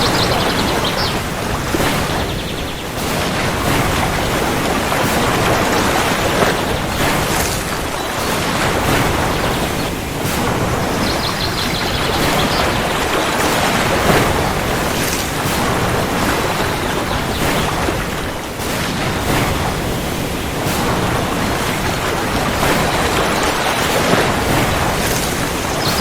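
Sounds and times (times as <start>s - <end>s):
rain patters and splashes: 0.0s - 26.0s.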